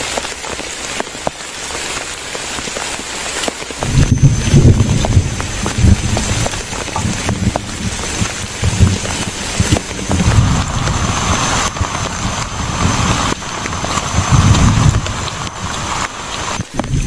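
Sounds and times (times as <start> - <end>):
wind buffeting microphone: 3.8 - 17.0.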